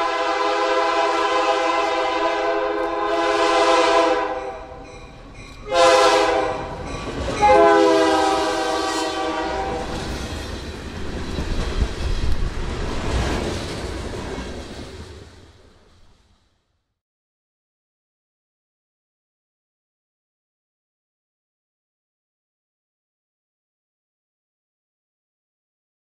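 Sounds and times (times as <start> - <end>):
locomotive air horn blasts: 0.0 - 4.8, 5.6 - 6.8, 7.4 - 10.0.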